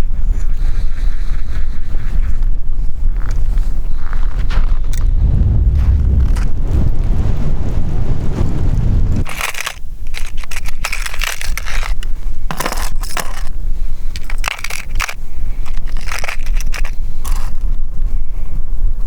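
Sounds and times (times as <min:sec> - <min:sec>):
wind rumbling on microphone: 0:00.0 - 0:19.0
crunching snow: 0:03.2 - 0:17.9.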